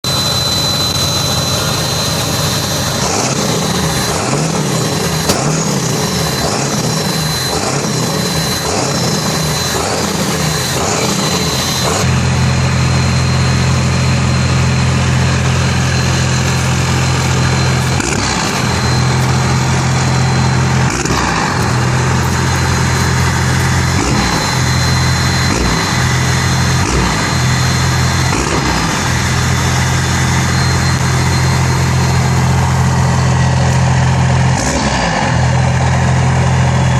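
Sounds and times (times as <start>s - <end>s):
thin high whine: 0.0s - 34.4s
diesel truck engine revving: 0.0s - 36.9s.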